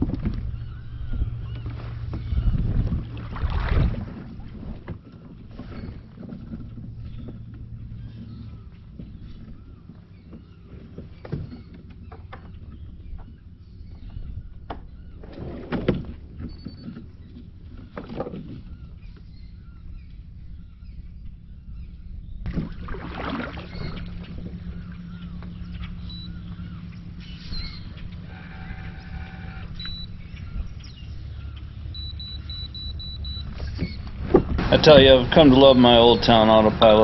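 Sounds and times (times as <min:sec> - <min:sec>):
low rumble: 0:00.0 - 0:05.4, 0:18.6 - 0:37.0
low hum: 0:00.0 - 0:37.0
water splashing against hull: 0:00.0 - 0:37.0.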